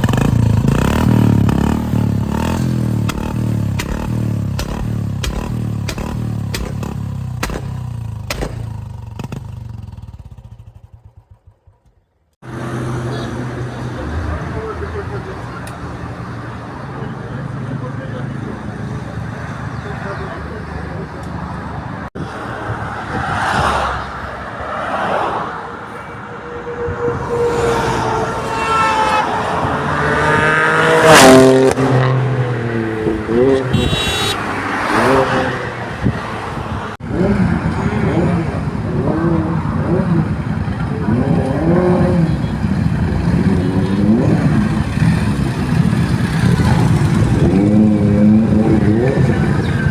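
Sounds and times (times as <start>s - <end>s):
motorcycle engine idling: 0.0s - 12.3s
passing traffic: 0.0s - 49.9s
sharp engine pops: 3.0s - 9.4s
car engine accelerating hard: 26.9s - 36.0s.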